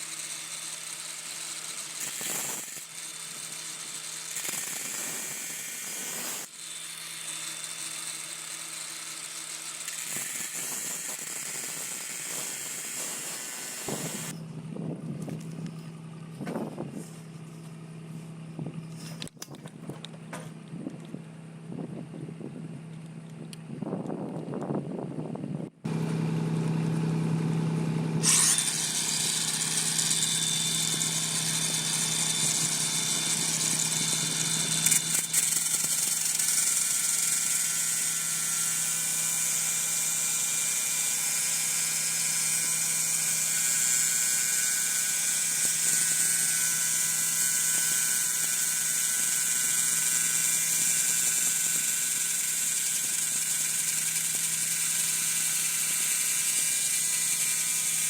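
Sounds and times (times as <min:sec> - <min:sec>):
electric motor whining: 0:00.0 - 0:16.8, 0:25.9 - 0:58.0
low hum: 0:14.2 - 0:28.4.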